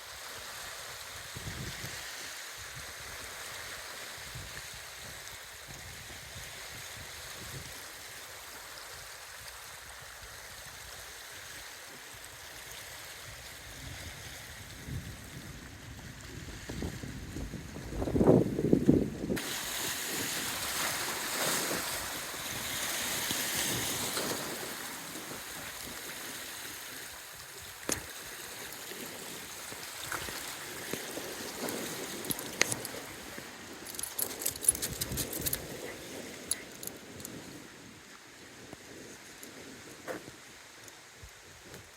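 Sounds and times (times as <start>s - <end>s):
strong wind buffeting microphone: 13.8s - 19.4s
light clicks and ticks: 33.9s - 35.7s.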